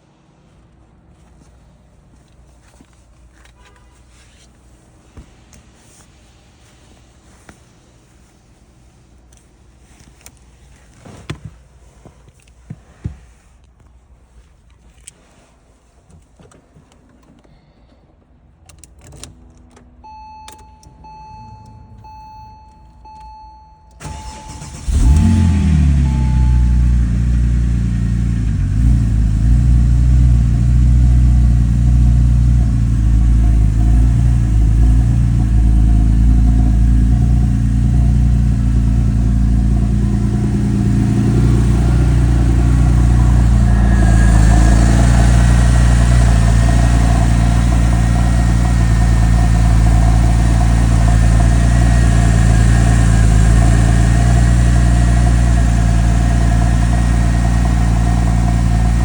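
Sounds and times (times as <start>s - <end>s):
car engine idling: 24.0s - 59.0s
high whine: 31.4s - 59.0s.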